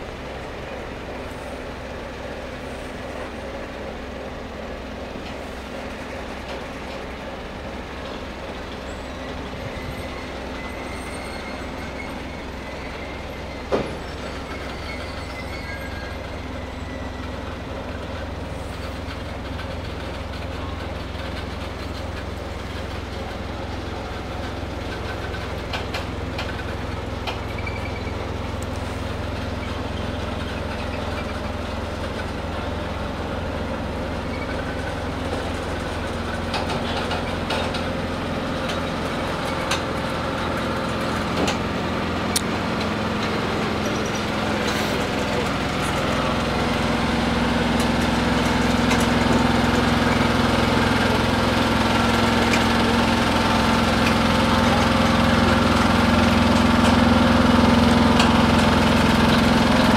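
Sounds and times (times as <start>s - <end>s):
diesel engine drone: 0.0s - 59.9s.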